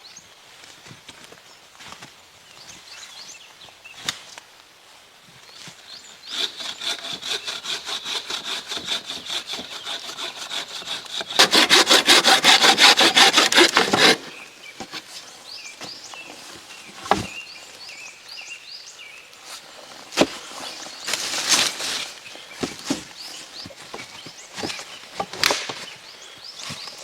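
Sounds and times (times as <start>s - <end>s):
hand saw cutting wood: 6.3s - 15.1s.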